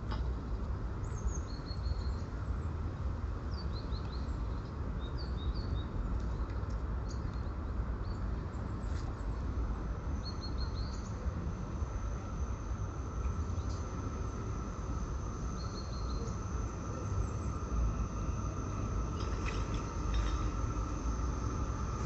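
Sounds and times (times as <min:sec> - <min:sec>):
steady low rumble: 0:07.6 - 0:22.0
small birds chirping: 0:15.6 - 0:16.4.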